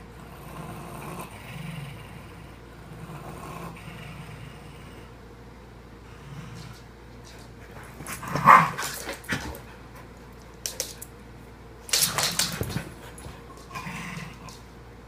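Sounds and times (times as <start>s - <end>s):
dogs growling: 0.0s - 5.2s, 6.0s - 7.0s, 12.1s - 14.7s.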